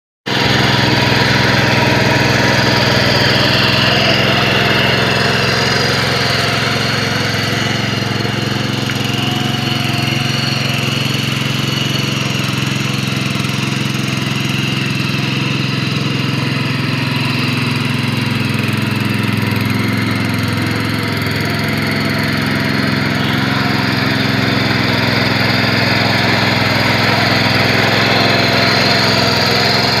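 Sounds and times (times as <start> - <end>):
petrol engine running steadily: 0.2 - 30.0.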